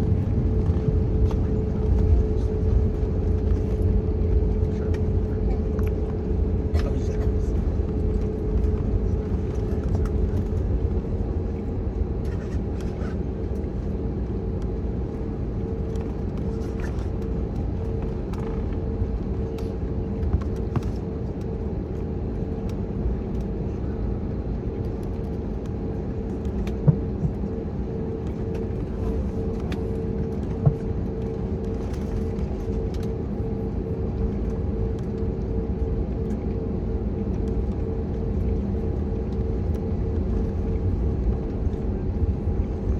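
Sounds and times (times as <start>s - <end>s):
steady hum: 0.0s - 22.3s
aircraft taxiing rumble: 0.0s - 42.9s.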